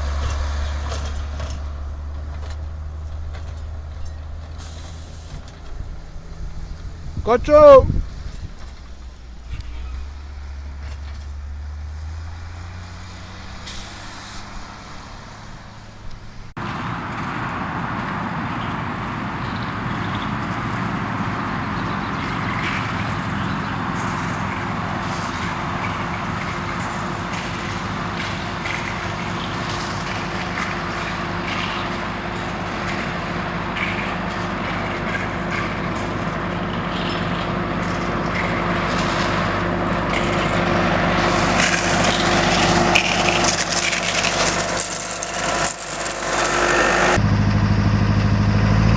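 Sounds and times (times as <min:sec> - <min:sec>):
heavy vehicle engine running: 0:00.0 - 0:48.9
machine noise with hum: 0:21.4 - 0:48.9.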